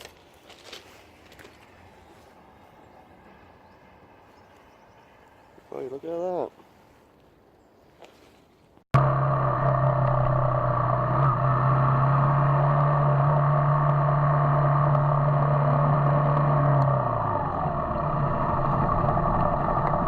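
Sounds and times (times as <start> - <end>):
motorcycle engine running: 9.0 - 20.0.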